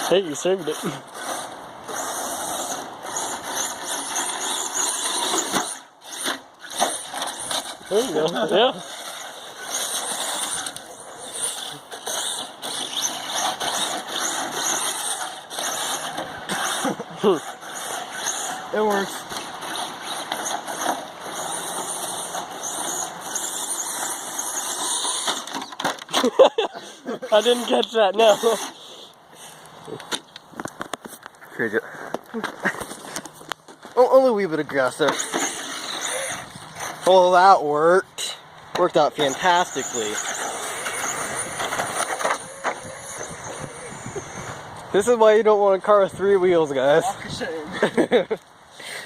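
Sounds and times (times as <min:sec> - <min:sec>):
toy truck motor whine: 0:00.0 - 0:26.3, 0:27.3 - 0:29.6, 0:35.0 - 0:37.5, 0:39.2 - 0:44.8
chassis and tyres rattling: 0:00.0 - 0:26.4, 0:29.8 - 0:45.2
wheels on the ground: 0:00.0 - 0:49.0.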